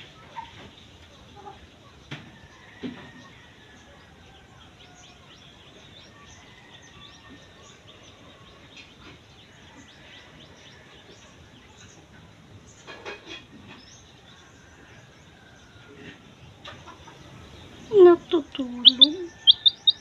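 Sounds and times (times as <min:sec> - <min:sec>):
faint bird chirping: 0:00.0 - 0:20.0
low steady background hum: 0:00.0 - 0:20.0
thin whistled bird notes: 0:18.8 - 0:20.0.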